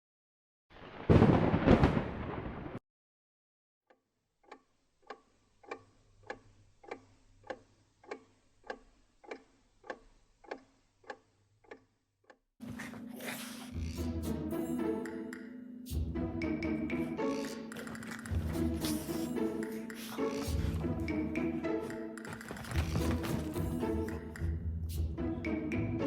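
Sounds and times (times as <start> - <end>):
evenly spaced ticks: 3.9 - 12.4, 13.7 - 15.6, 16.5 - 22.9
music: 12.8 - 26.0.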